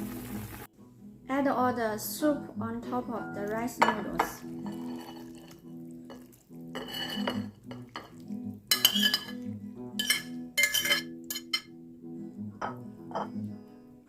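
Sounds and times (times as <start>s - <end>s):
utensil clinking against pot: 3.8s - 9.4s, 10.0s - 11.7s.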